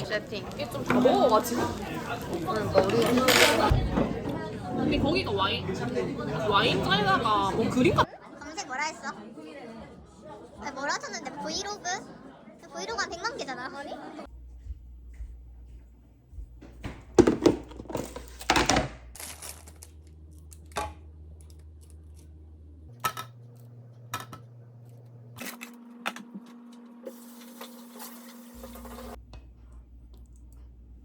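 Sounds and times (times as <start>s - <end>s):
low room hum: 19.1s - 25.4s, 28.6s - 31.0s.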